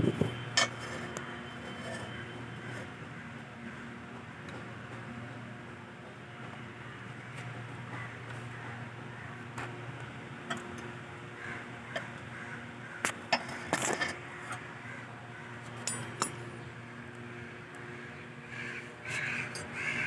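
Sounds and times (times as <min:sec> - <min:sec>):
steady low hum: 0:00.0 - 0:20.0
crow cawing: 0:11.4 - 0:13.0, 0:17.9 - 0:20.0
metal tools clinking: 0:15.8 - 0:16.5.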